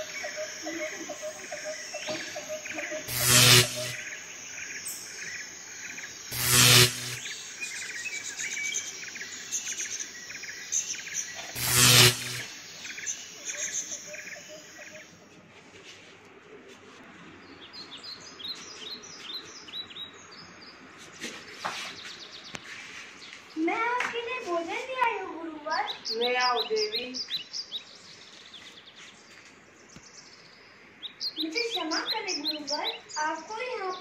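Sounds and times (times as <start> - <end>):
loud bursts of noise: 0.0 - 4.4, 6.2 - 7.6, 11.4 - 12.8
small birds chirping: 17.4 - 34.0.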